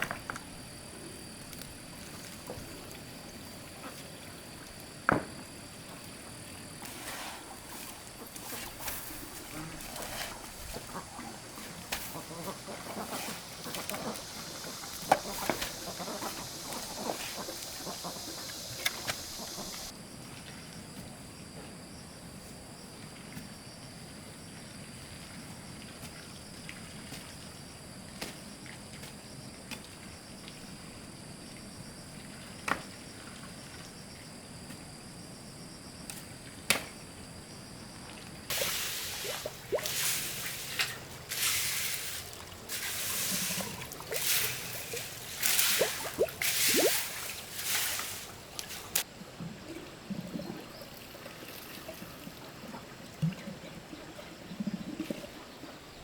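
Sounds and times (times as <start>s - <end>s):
high insect drone: 0.0s - 20.2s, 37.0s - 49.0s.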